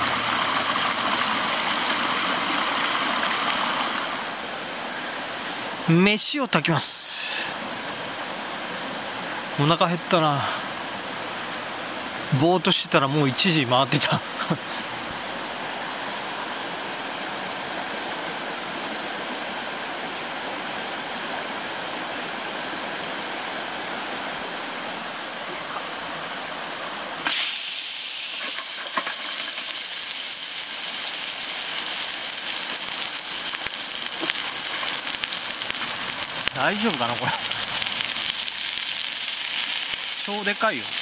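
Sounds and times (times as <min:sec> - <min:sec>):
mountain stream rushing: 0:00.0 - 0:41.0
patty sizzling in frying pan: 0:27.2 - 0:41.0.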